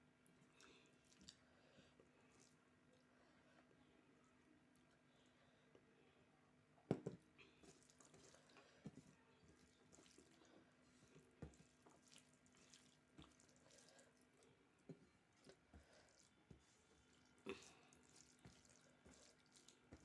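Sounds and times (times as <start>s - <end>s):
person chewing food wetly: 0.4s - 1.5s, 7.6s - 20.0s.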